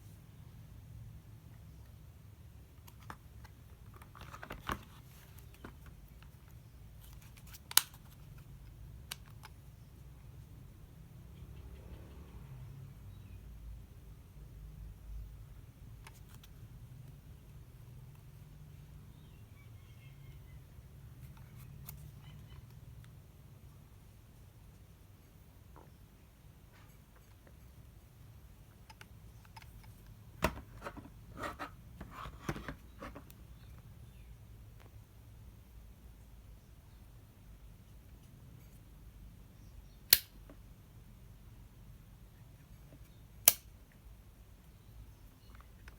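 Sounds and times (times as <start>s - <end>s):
light click: 43.4s - 43.7s.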